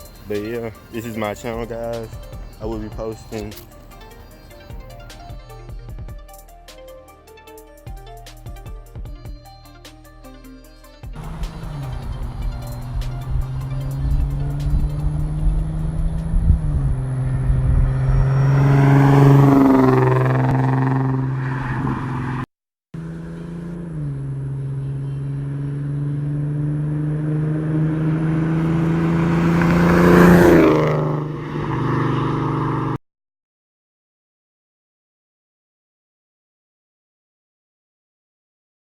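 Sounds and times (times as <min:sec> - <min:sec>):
car engine idling and revving: 0:00.0 - 0:06.5, 0:11.1 - 0:33.0.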